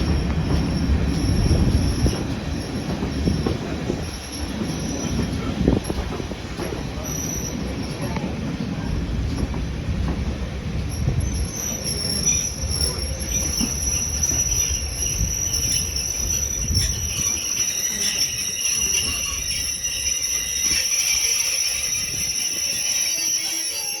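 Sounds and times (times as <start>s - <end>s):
train rumble: 0.0s - 24.0s
high-pitched wheel squeal: 11.2s - 24.0s.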